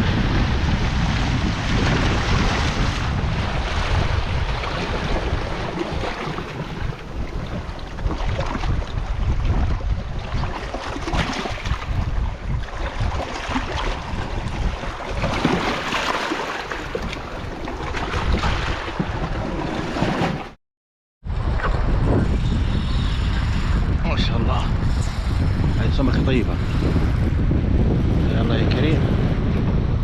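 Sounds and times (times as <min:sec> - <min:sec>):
sea surf: 0:00.0 - 0:09.0, 0:10.6 - 0:19.0
wind buffeting microphone: 0:00.0 - 0:20.4, 0:21.2 - 0:30.0.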